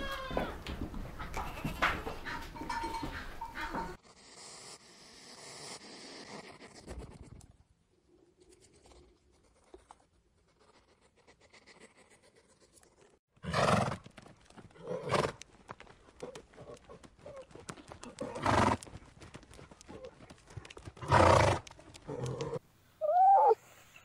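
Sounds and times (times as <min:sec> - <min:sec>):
horse snorting: 0:18.0 - 0:18.9, 0:21.0 - 0:22.6.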